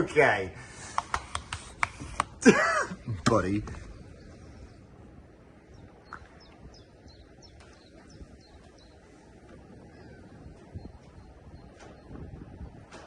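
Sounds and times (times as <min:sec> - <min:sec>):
outdoor background noise: 0:00.0 - 0:13.0
small bird chirping: 0:05.6 - 0:12.7.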